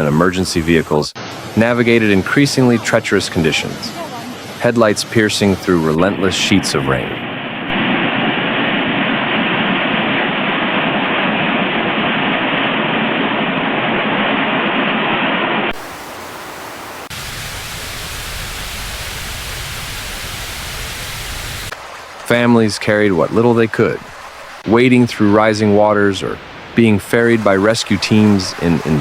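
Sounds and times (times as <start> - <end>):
flood water rushing: 1.2 - 7.5, 15.7 - 29.0
rain: 1.2 - 7.9, 15.7 - 29.0.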